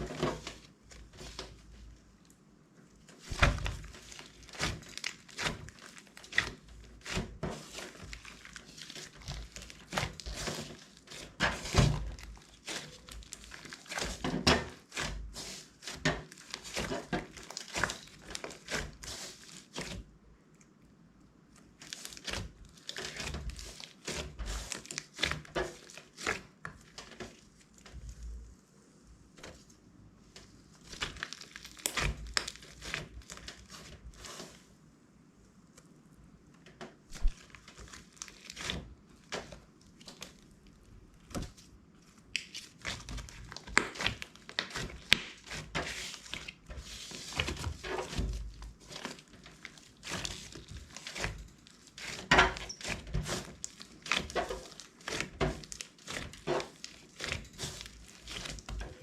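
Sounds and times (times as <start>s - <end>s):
slime crackling and popping: 3.2s - 20.0s, 30.8s - 34.2s, 37.1s - 41.6s, 42.2s - 59.0s.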